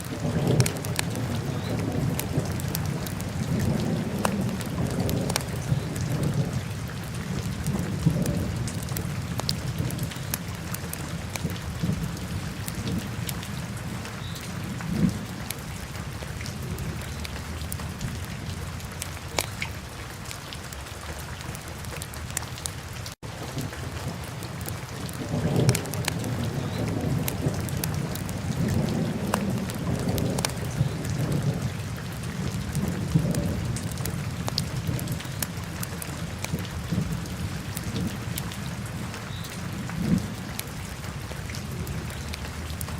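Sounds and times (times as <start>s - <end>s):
fire crackling and popping: 0.0s - 5.6s.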